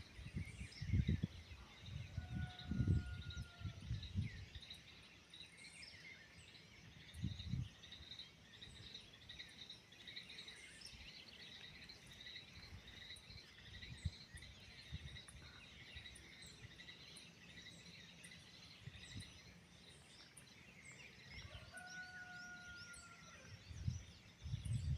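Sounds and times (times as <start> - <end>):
birds chirping and twittering: 0.0 - 24.9.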